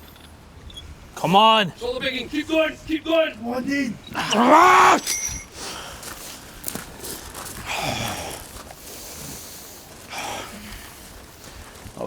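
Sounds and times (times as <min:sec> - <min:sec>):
falling groan: 0:04.1 - 0:05.2
man breathing hard: 0:04.2 - 0:06.5, 0:07.6 - 0:11.7.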